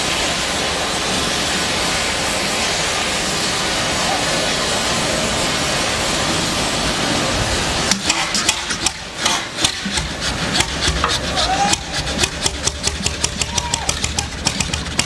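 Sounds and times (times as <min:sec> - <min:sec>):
old engine roaring: 0:00.0 - 0:15.0
engine knocking clatter: 0:07.6 - 0:15.0.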